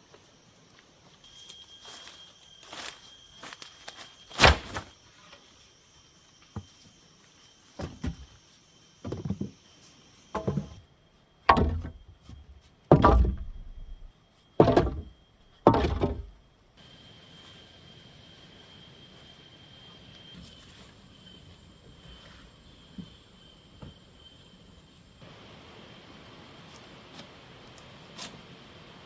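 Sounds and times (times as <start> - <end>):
heavy thuds on wood: 7.8 - 8.3, 10.4 - 10.8, 11.5 - 16.4.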